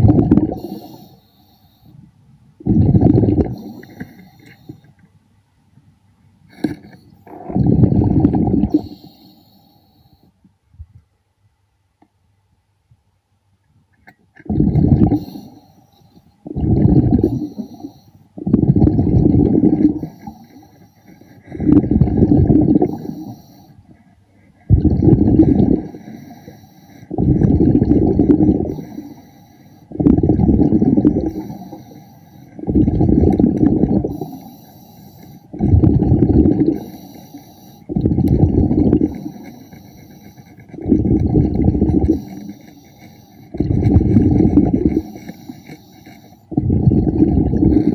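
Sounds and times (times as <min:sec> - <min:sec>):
regulator bubbles underwater: 0:00.0 - 0:01.1, 0:02.6 - 0:04.8, 0:06.6 - 0:09.3, 0:14.4 - 0:15.6, 0:16.4 - 0:23.6, 0:24.6 - 0:47.9
faint hissing and clicking: 0:00.0 - 0:47.9.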